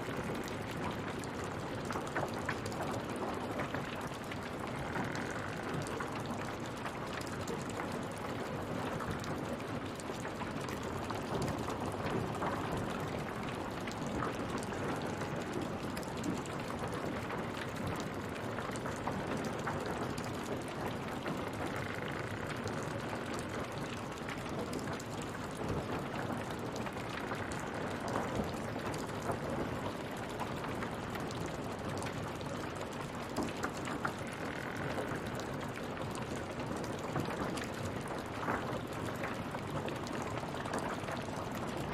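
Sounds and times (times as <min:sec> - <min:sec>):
rain falling: 0:00.0 - 0:41.9.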